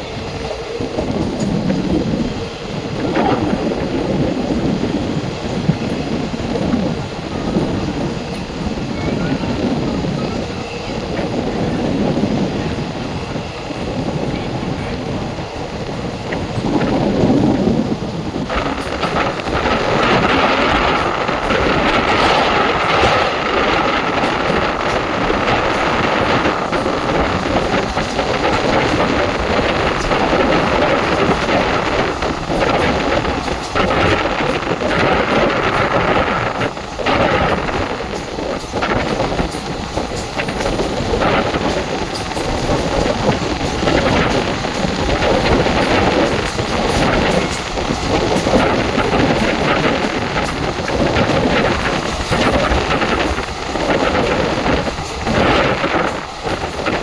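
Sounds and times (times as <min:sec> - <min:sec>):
rushing air: 0:00.0 - 0:57.0
train wheels rumbling on rails: 0:00.0 - 0:57.0.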